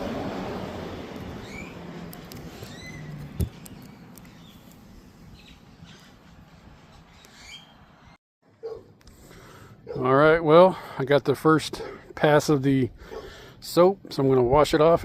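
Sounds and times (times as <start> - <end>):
birds chirping: 1.2 - 8.8.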